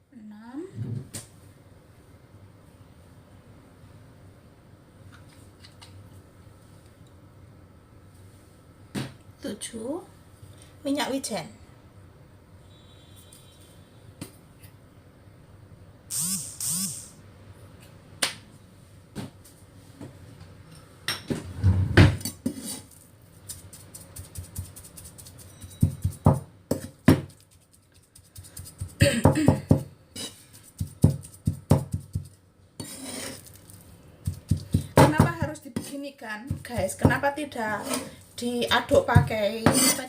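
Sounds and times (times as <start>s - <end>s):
minced meat slapping in a bowl: 23.4s - 29.0s, 30.5s - 32.4s, 33.5s - 37.2s.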